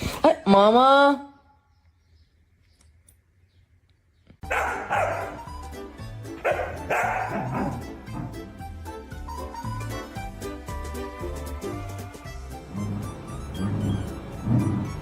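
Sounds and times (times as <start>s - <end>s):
dog barking: 4.4s - 5.4s, 6.4s - 7.8s
music with bass line: 4.5s - 15.0s.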